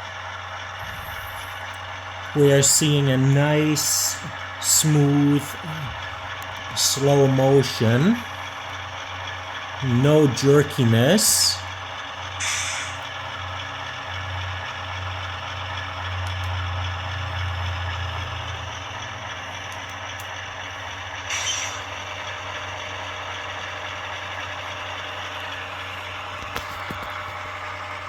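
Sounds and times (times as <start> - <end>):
model diesel engine running: 0.0 - 28.0
short hiss: 12.4 - 13.0.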